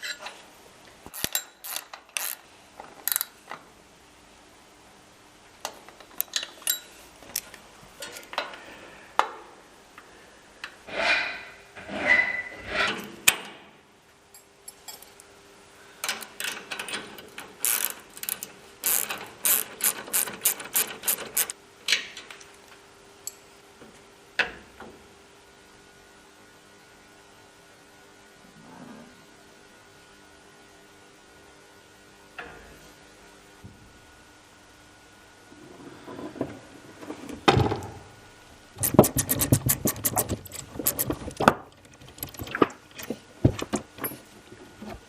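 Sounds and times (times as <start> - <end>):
hand ratchet clicking: 1.1 - 2.4, 17.6 - 21.6, 38.8 - 42.4.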